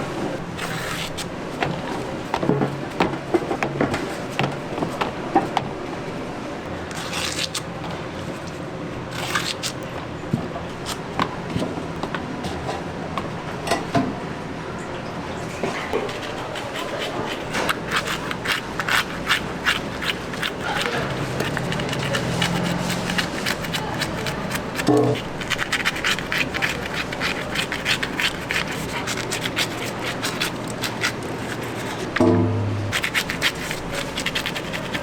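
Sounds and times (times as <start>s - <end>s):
rapid scraping and clicking: 15.9s - 32.2s, 32.9s - 35.0s.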